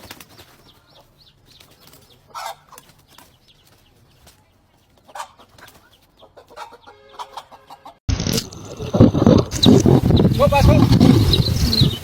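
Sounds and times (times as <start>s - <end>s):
fowl clucking: 2.3s - 2.9s, 5.0s - 8.0s.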